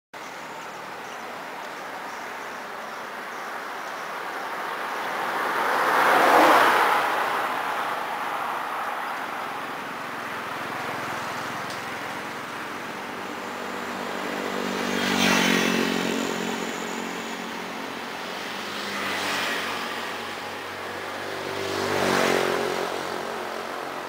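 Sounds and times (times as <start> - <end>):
vehicle passing by: 4.7 - 24.0.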